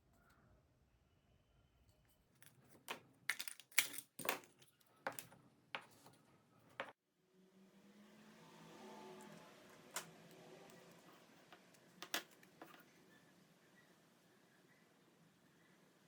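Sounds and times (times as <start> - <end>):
clicks and taps of small parts: 2.4 - 5.9, 11.6 - 12.8.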